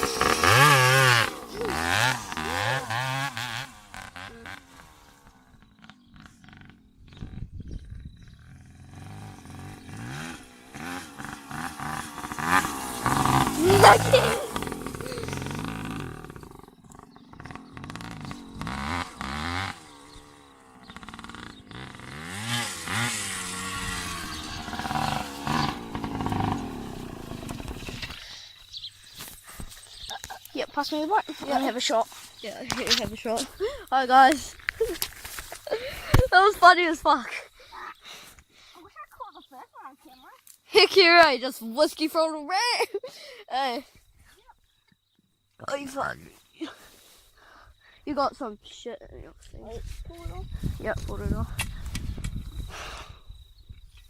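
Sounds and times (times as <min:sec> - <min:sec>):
dirt bike engine revving: 0:00.0 - 0:28.8.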